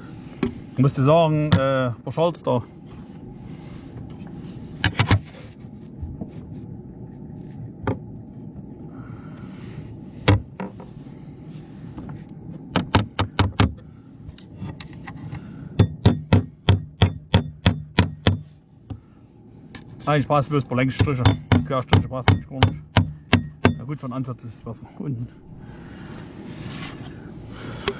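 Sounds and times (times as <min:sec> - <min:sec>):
steady low hum: 0:00.0 - 0:27.9
hammer driving nails: 0:22.6 - 0:23.8.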